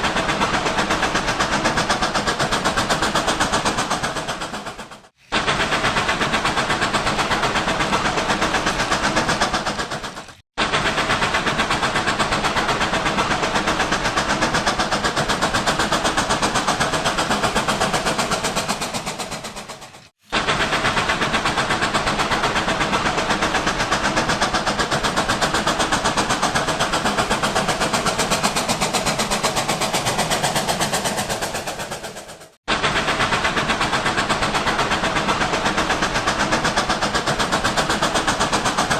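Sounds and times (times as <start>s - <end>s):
wheels clicking on rail: 0.0s - 38.9s.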